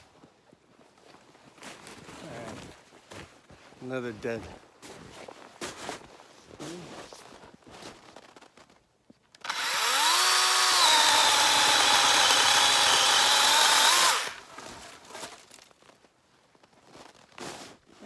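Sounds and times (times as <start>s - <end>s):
electric chainsaw cutting wood: 9.4s - 14.9s.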